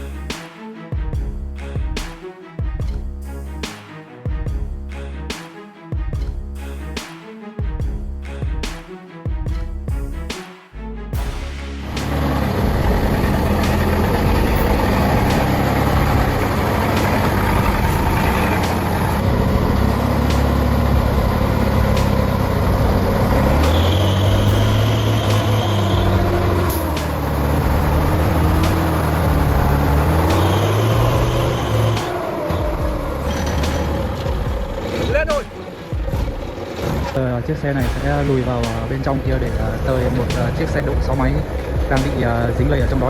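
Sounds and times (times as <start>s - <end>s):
truck diesel engine revving: 11.2s - 43.0s.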